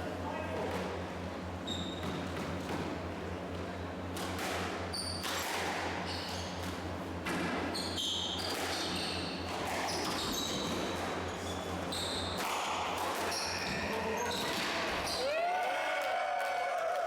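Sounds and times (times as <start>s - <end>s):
shoes squeaking on court floor: 1.6s - 2.7s, 6.0s - 6.9s, 7.6s - 15.2s.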